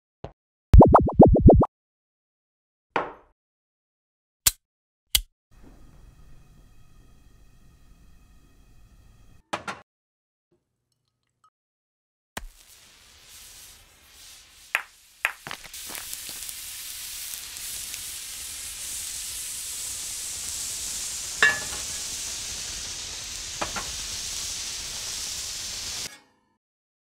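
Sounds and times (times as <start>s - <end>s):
food sizzling in a frying pan: 12.4s - 26.1s
oil popping: 14.7s - 16.9s.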